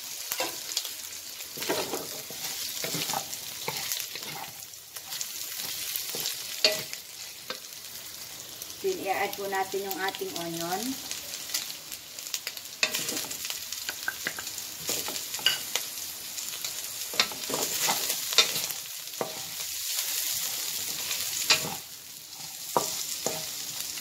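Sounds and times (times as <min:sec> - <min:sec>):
food sizzling in a wok: 0:00.0 - 0:24.0
wooden spatula scraping a pan: 0:01.6 - 0:07.5, 0:17.1 - 0:19.7.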